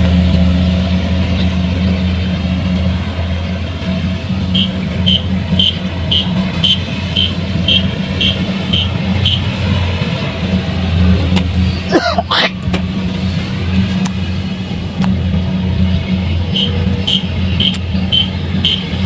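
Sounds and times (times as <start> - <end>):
diesel engine running: 0.0 - 19.0
high-pitched warning beeps: 4.5 - 9.6, 16.5 - 19.0.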